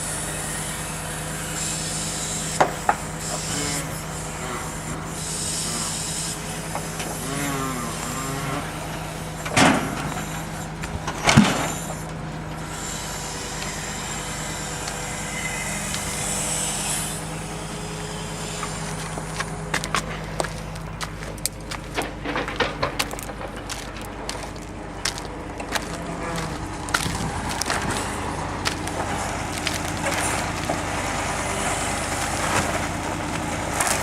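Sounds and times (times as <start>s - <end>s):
truck engine running: 0.0s - 34.0s
logs knocking on load: 6.2s - 12.7s.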